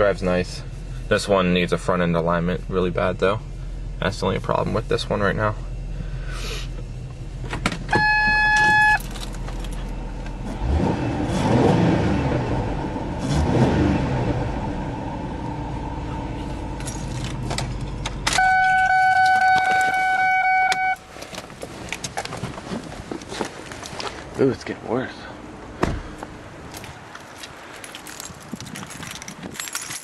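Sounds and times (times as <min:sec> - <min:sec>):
car engine idling: 0:00.0 - 0:11.5, 0:14.1 - 0:26.7
long steady tones: 0:07.9 - 0:09.4, 0:18.3 - 0:21.2.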